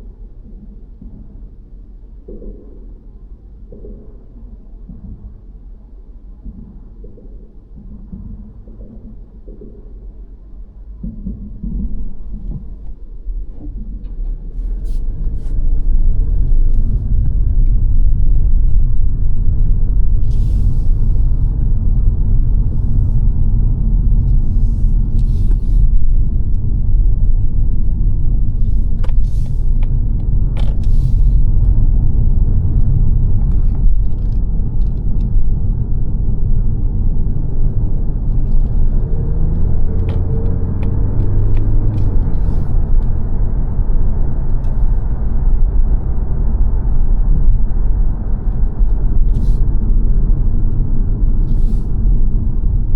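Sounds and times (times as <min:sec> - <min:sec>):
car road and engine rumble: 0:00.0 - 0:52.9.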